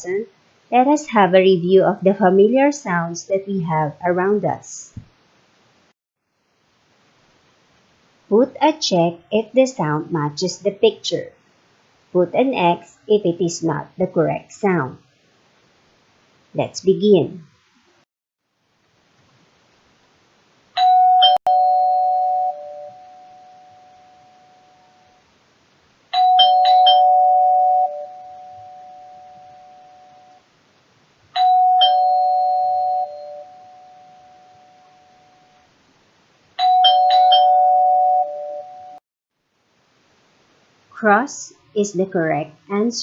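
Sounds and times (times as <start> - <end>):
doorbell chiming ding-dong: 20.8 - 24.9, 26.2 - 30.4, 31.4 - 35.5, 36.6 - 39.0.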